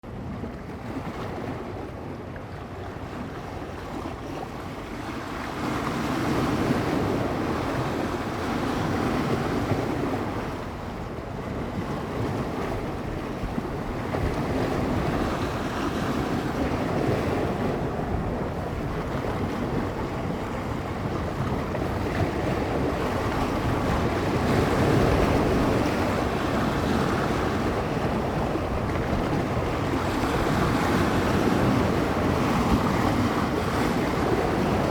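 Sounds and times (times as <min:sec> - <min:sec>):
waves washing against shore: 0:00.1 - 0:34.9
wind gusting on microphone: 0:00.1 - 0:34.9.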